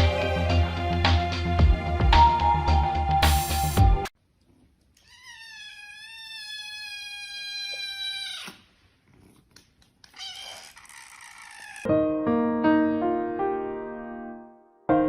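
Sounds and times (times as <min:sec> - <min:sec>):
background music: 0:00.0 - 0:04.1
cat meowing: 0:05.0 - 0:08.7, 0:10.0 - 0:11.9.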